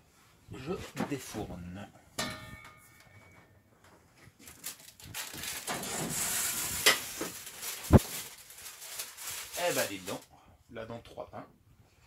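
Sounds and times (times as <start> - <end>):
loaves scraping out of oven: 5.6 - 8.1.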